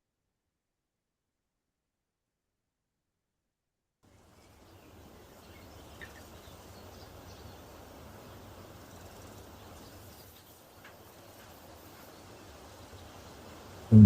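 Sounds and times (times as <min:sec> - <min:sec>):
steady background noise: 0:04.1 - 0:14.0.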